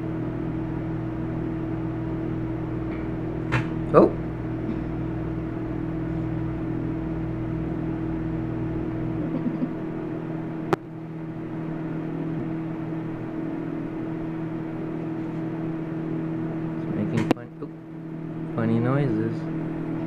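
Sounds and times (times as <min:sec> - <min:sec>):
deep rumble: 0:00.0 - 0:11.5
microwave oven humming: 0:00.0 - 0:20.0.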